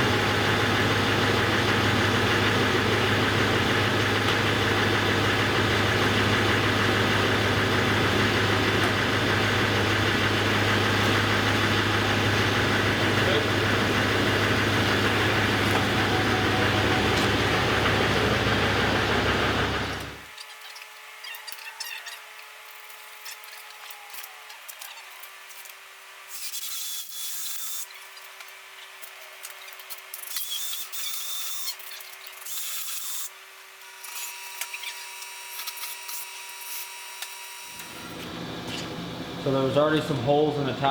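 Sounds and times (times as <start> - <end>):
cordless drill running: 0.0 - 20.3
truck engine idling: 0.0 - 20.3, 37.8 - 40.9.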